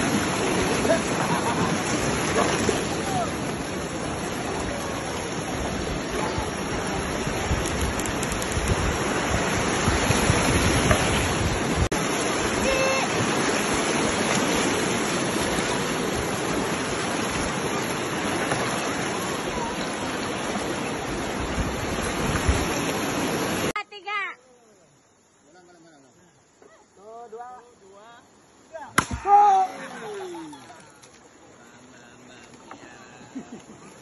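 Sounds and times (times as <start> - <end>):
river rapids rushing: 0.0 - 23.8.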